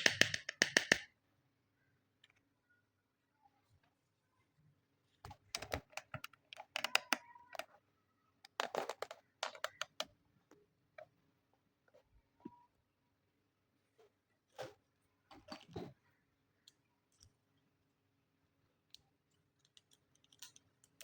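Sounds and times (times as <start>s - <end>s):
small plastic toy pieces clicking: 5.5s - 7.7s, 8.5s - 10.1s, 19.4s - 21.0s.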